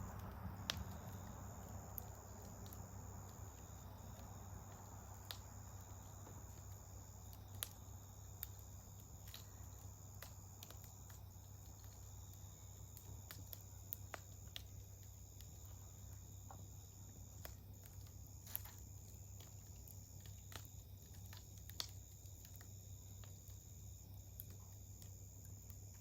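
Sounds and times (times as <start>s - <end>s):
campfire crackling: 0.0s - 26.0s
crickets trilling: 0.0s - 26.0s
fire popping: 0.0s - 26.0s.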